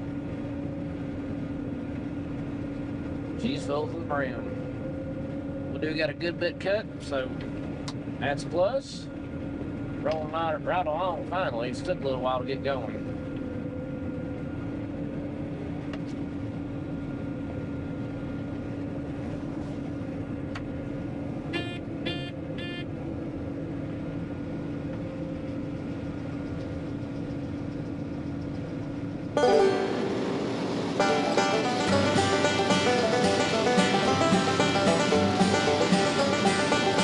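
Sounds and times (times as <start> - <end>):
farm machine drone from cab: 0.0 - 37.0
short electronic beeps: 21.5 - 22.9
banjo music: 29.4 - 37.0.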